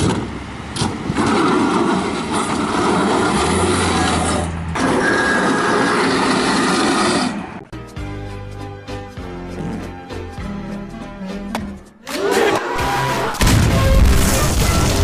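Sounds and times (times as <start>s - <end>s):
refrigerator scraping across pavement: 1.2s - 7.6s.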